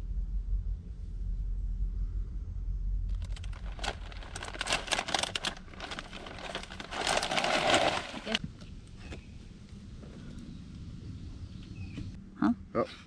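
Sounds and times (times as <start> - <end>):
low rumble: 0.0 - 8.4
crinkling and rustling: 3.1 - 8.4.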